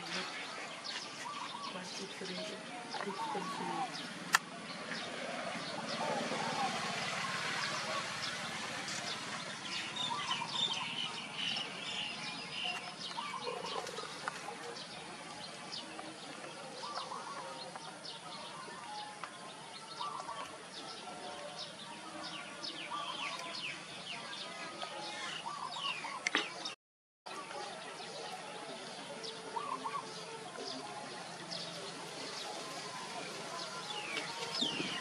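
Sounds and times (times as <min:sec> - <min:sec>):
birds chirping and twittering: 0:00.0 - 0:35.0.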